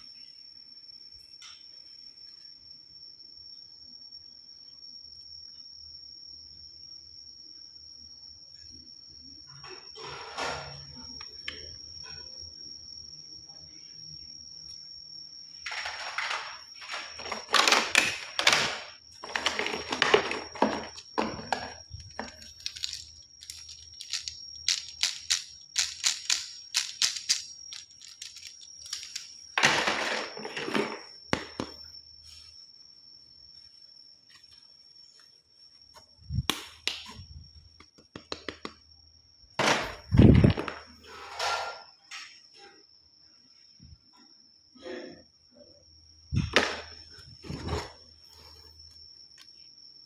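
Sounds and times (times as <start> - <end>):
plastic packaging crinkling: 16.9 - 29.4.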